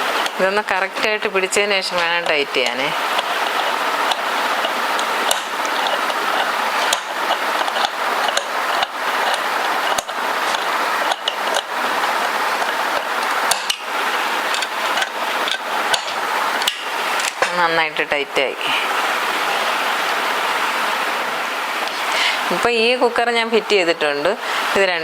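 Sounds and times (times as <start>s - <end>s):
steady hiss: 0.0s - 25.0s
tool clicking on metal lid: 2.0s - 11.7s, 12.6s - 13.9s.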